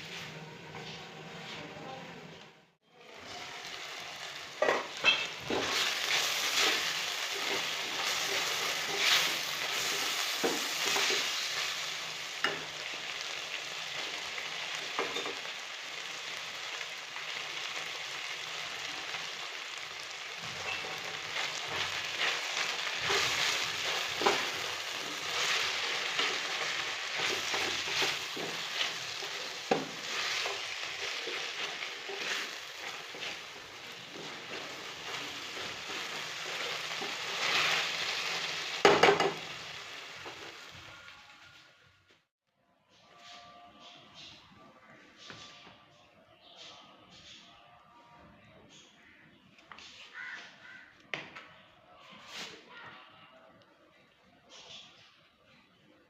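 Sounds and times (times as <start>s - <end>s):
food sizzling in a pan: 2.9s - 41.7s.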